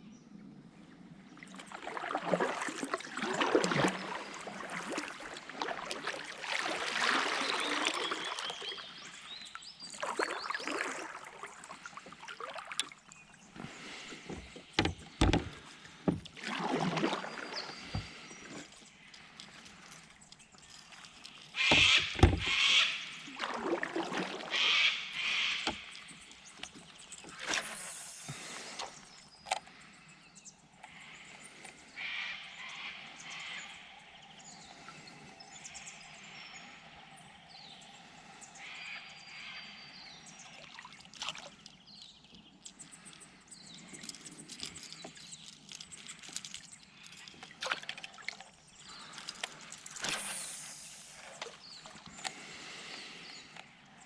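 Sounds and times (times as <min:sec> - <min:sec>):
water sloshing: 0:01.4 - 0:29.2, 0:40.5 - 0:53.3
paddle swishes: 0:49.9 - 0:52.0.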